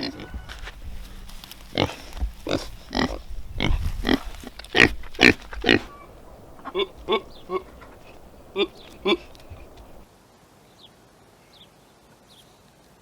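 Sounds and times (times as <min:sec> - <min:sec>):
pigs grunting: 0:01.7 - 0:05.9, 0:06.6 - 0:09.4
high-pitched pig calls: 0:02.5 - 0:07.9, 0:08.5 - 0:09.3.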